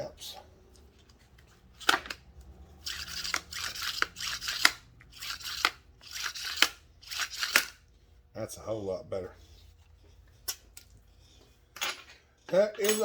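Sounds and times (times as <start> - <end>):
starter rope pulled and rewinding: 1.8 - 7.8.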